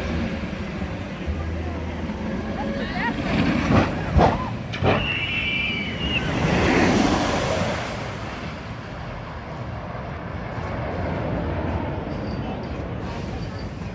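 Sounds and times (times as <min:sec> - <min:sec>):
high whistling tone: 0:04.9 - 0:06.7.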